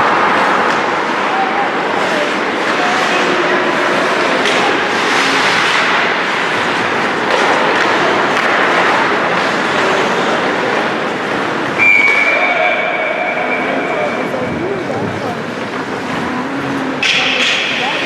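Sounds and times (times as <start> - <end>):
skates scraping on ice: 0.0 - 12.3
referee whistle: 11.8 - 14.1.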